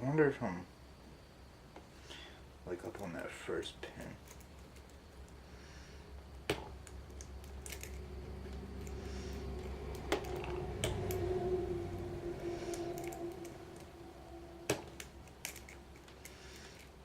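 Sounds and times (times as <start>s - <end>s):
low hum: 4.8s - 17.0s
lock picks clicking in padlock: 6.8s - 9.0s, 14.7s - 17.0s.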